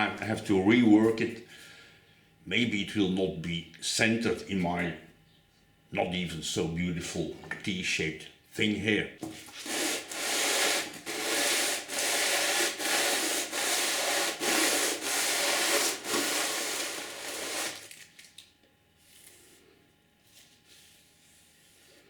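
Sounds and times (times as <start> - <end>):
metal rasping against abrasive: 9.6 - 17.8.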